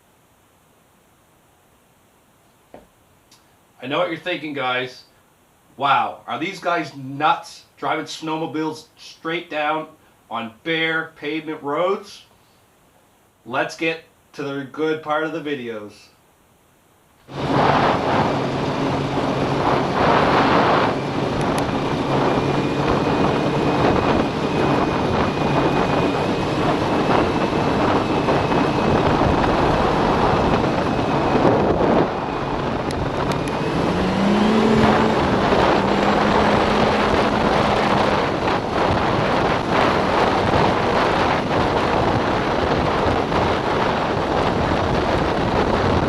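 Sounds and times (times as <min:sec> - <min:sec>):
snowmobile engine at speed: 0:17.3 - 0:46.0
wind rushing past microphone: 0:17.3 - 0:46.0.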